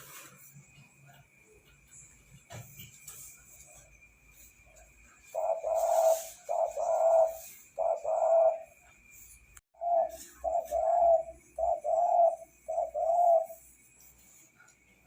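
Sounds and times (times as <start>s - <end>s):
dove cooing: 5.2s - 8.8s, 9.8s - 13.7s.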